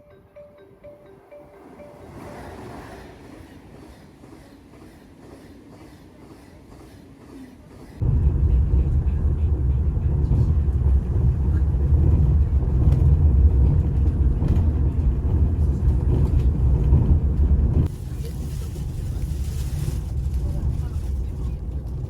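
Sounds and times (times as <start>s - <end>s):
loud low rumble: 8.0s - 17.9s.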